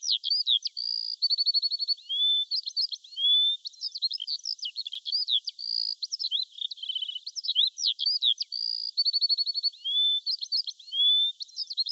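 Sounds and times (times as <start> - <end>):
songbirds singing: 0.0 - 11.9.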